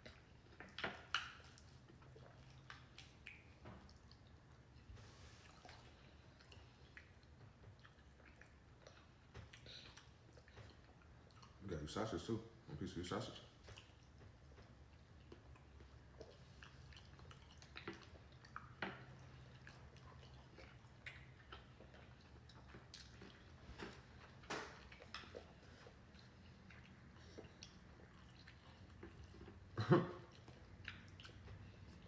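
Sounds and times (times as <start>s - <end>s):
chewing: 0.0s - 12.3s, 13.1s - 32.0s.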